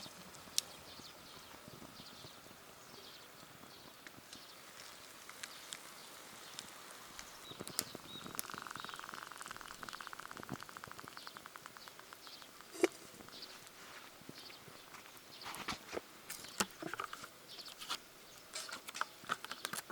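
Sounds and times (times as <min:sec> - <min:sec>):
low hiss: 0:00.0 - 0:19.9
wood fire crackling: 0:00.0 - 0:19.9
fire pops and ticks: 0:04.0 - 0:19.9.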